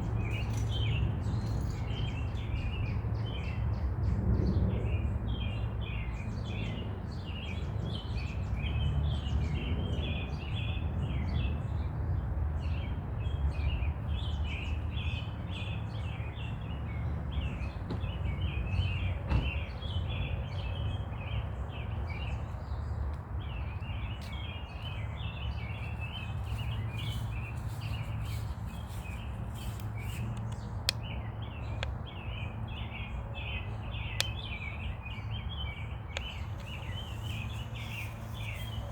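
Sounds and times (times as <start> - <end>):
small birds chirping: 12.6 - 38.9.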